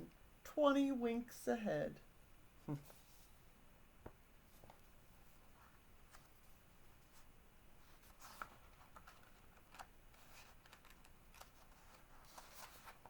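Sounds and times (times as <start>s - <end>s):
book pages rustling: 4.5s - 13.0s.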